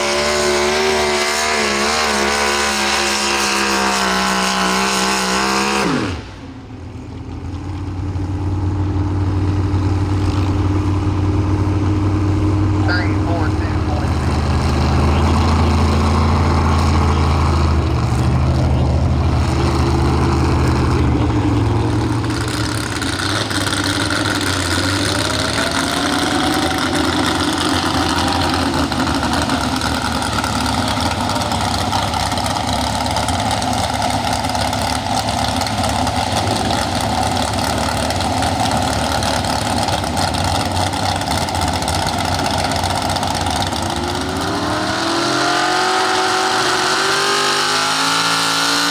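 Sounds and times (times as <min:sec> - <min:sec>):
truck engine at high revs: 0:00.0 - 0:48.9
truck engine idling rumble: 0:06.3 - 0:45.0.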